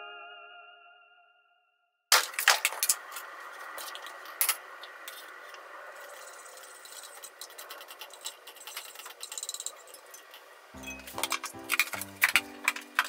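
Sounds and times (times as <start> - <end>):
utensil scraping metal saucepan: 3.8 - 13.0.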